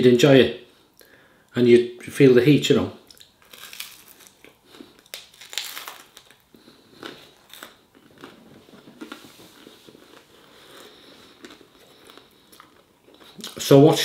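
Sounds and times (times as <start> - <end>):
person chewing crackly food: 3.1 - 13.7.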